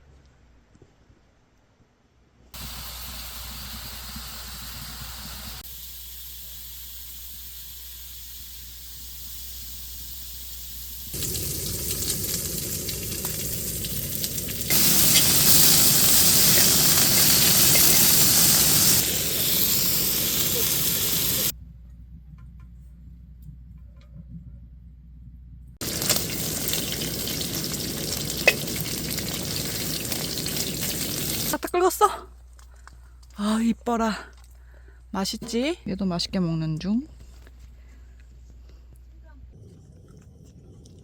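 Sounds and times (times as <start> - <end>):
food sizzling: 2.6 - 21.5, 25.8 - 31.6.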